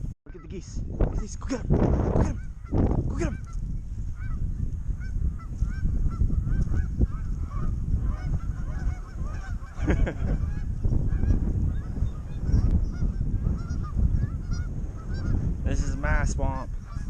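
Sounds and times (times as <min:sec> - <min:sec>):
geese honking: 0:00.3 - 0:01.3, 0:05.0 - 0:15.4.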